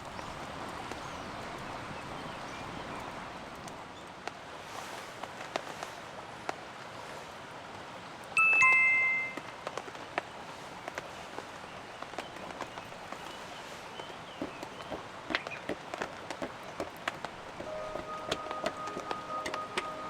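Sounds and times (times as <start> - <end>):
rain falling: 0.0 - 4.6, 5.2 - 20.0
two-note chime: 8.4 - 9.5, 17.7 - 20.0
drops ticking: 14.4 - 20.0.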